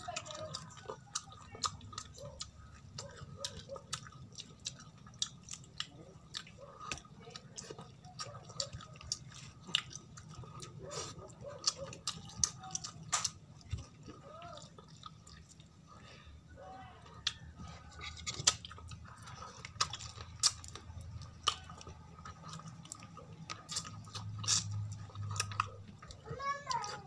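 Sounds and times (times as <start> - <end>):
chewing and lip smacking: 0.0 - 16.2, 17.0 - 27.0
low steady hum: 0.0 - 27.0
soft murmured sounds: 0.0 - 27.0
wet mouth clicks: 23.7 - 25.8.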